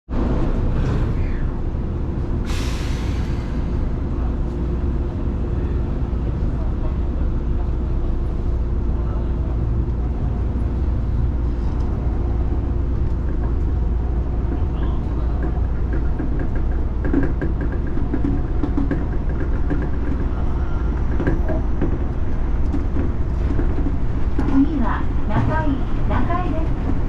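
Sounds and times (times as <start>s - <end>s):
train rumbling on track: 0.1s - 27.0s.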